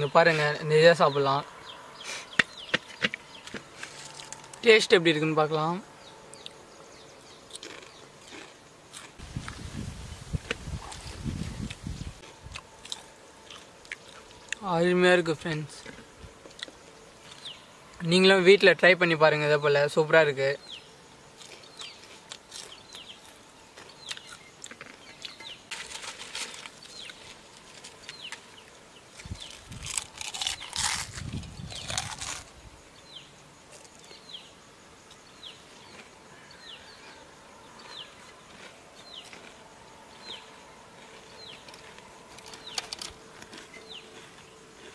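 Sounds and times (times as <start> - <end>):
bird chirping: 0.0 - 8.5, 10.0 - 18.6, 19.5 - 25.7, 26.8 - 44.9.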